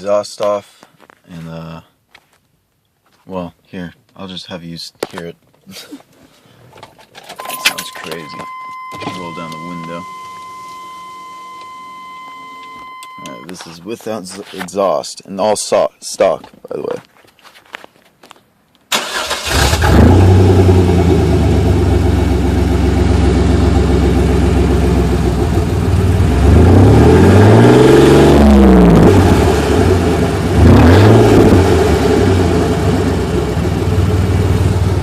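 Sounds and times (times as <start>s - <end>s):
car engine starting and idling: 7.4s - 13.7s, 18.9s - 35.0s
engine revving: 19.0s - 34.8s.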